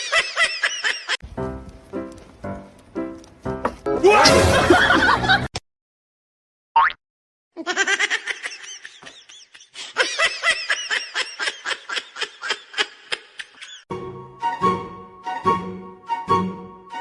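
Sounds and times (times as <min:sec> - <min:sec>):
person laughing hard: 0:04.1 - 0:05.5, 0:07.6 - 0:13.8.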